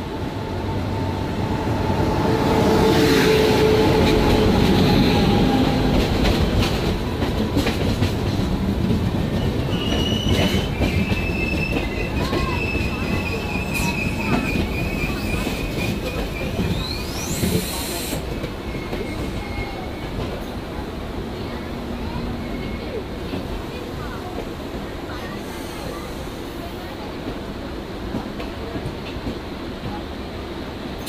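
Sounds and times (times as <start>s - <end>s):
train rolling rumble and clatter: 0.0s - 31.0s
high wheel squeal: 9.7s - 17.9s.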